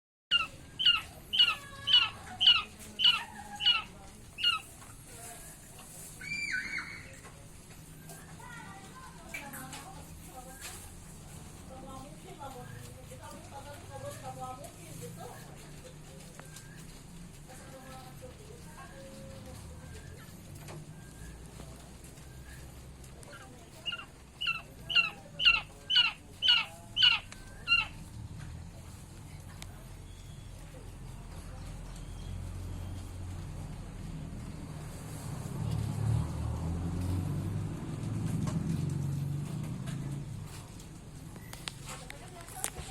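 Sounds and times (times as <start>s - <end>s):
quail calling: 0.3s - 4.8s, 23.3s - 28.1s.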